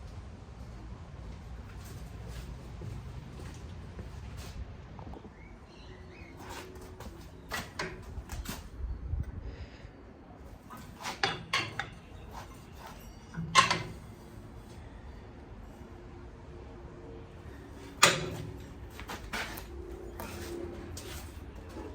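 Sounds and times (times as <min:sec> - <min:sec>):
objects knocking and clattering: 0:13.3 - 0:14.0.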